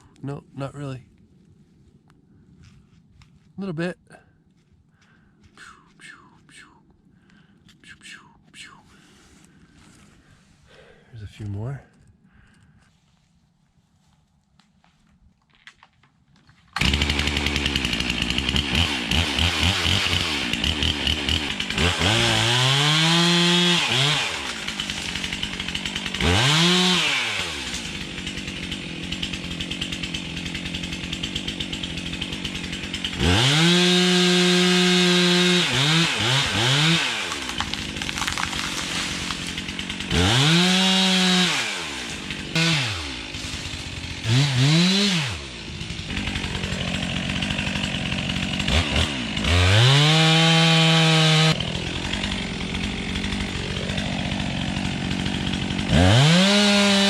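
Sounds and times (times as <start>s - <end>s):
chainsaw idling and revving: 16.7s - 57.0s.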